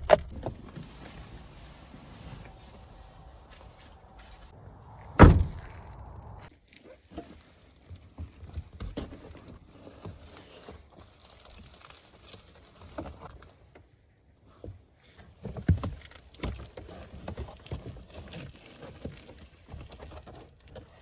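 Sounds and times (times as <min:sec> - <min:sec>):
vehicle door shutting: 0:00.0 - 0:00.4, 0:04.4 - 0:06.5.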